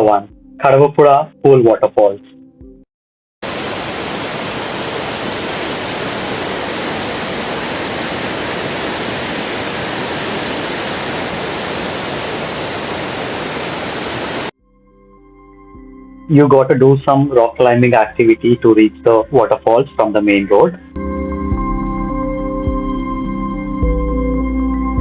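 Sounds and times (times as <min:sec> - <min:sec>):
waterfall rushing: 0:03.4 - 0:14.5.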